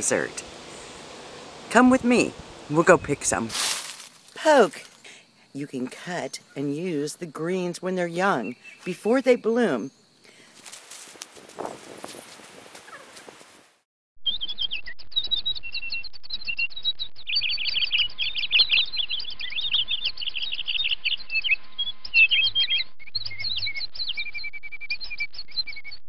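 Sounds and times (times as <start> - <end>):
dense birdsong chirps and whistles: 0.0 - 3.4, 4.9 - 10.4, 14.3 - 26.0.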